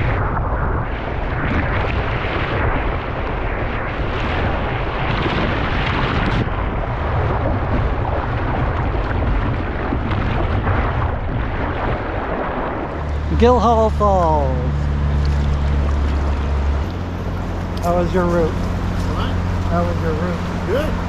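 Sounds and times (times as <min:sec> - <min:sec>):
deep rumble: 0:00.0 - 0:21.0
river rapids rushing: 0:12.9 - 0:21.0.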